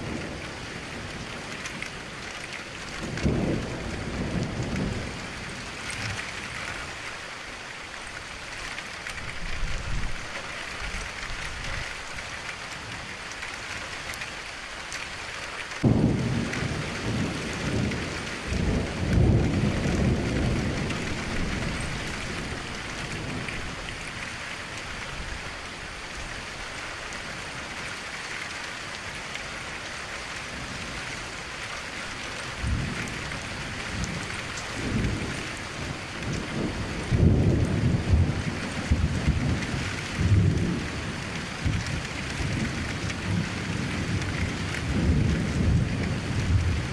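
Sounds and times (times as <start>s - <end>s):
rain falling against a window: 0.0s - 46.9s
thunder rolling: 15.8s - 23.7s.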